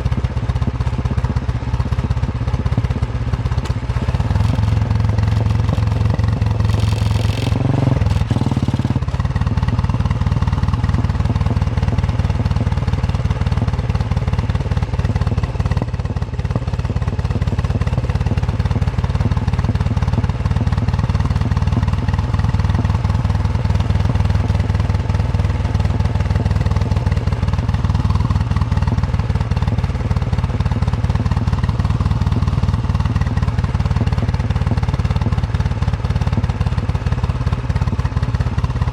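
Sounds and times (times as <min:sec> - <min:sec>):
motorcycle engine thumping: 0:00.1 - 0:18.2.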